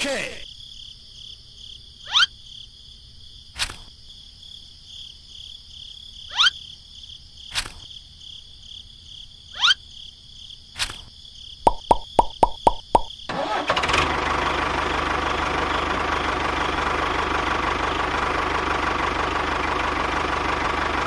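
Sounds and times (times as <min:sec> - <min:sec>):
cricket-like chirring: 0:00.4 - 0:13.3
toy knocking on wooden trailer: 0:11.7 - 0:13.1.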